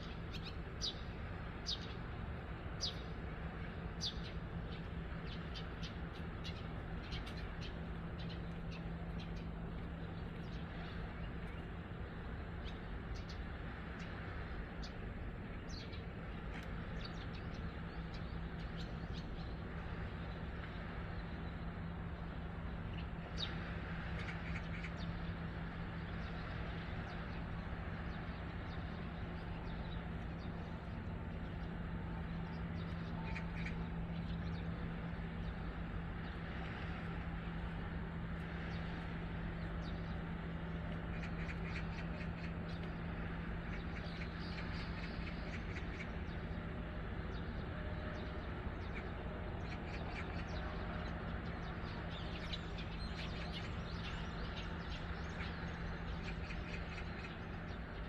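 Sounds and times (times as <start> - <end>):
low steady hum: 0.0 - 58.0
birds calling: 22.7 - 58.0.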